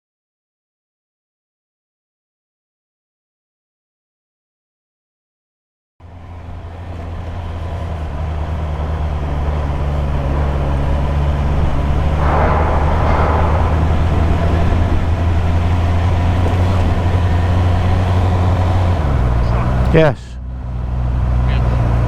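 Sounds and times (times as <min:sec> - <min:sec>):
engine droning steadily: 0:06.0 - 0:22.0.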